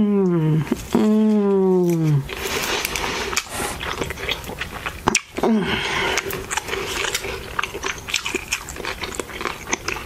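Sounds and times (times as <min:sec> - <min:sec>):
person chewing food: 0:00.6 - 0:10.0
lip and tongue clicks: 0:06.1 - 0:10.0.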